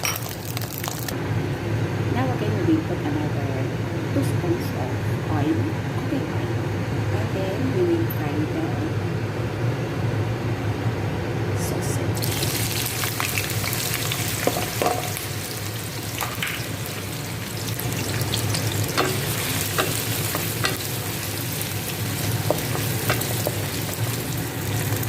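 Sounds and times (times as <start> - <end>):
sausage sizzling in hot oil: 0.0 - 1.2, 12.2 - 25.0.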